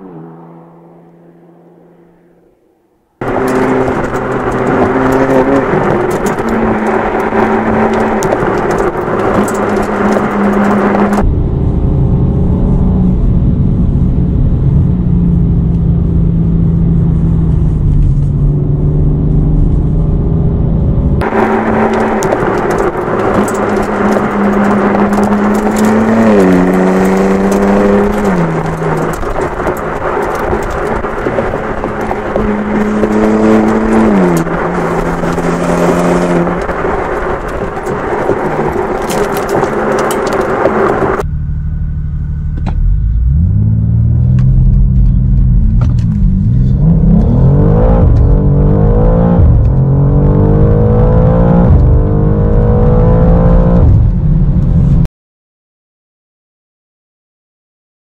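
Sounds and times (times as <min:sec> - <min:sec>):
car engine revving: 0:00.0 - 0:55.0
tyre noise: 0:03.2 - 0:11.3, 0:21.1 - 0:41.2
wind noise: 0:03.2 - 0:41.3, 0:43.6 - 0:55.1.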